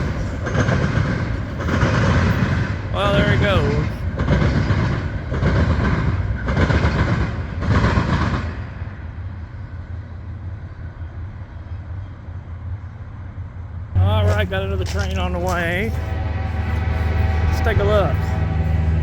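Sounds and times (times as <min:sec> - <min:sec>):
train wheels clattering over rails: 0:00.0 - 0:09.0.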